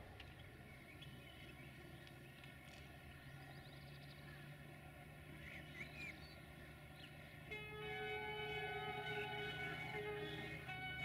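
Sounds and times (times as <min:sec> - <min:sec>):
faint low drone: 0:00.0 - 0:11.0
bird chirps: 0:05.4 - 0:11.0.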